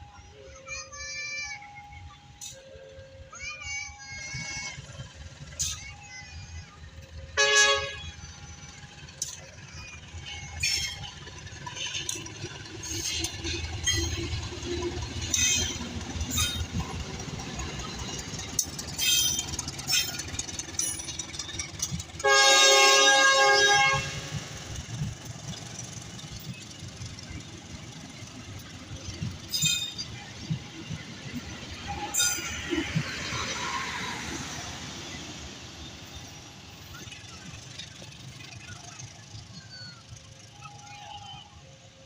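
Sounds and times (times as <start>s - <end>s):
train rumbling: 0.0s - 42.0s
diesel train horn: 7.2s - 8.4s, 22.2s - 24.6s.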